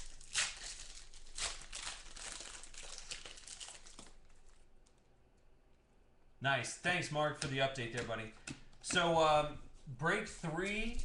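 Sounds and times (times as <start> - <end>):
plastic sleeves crinkling: 0.0 - 5.1.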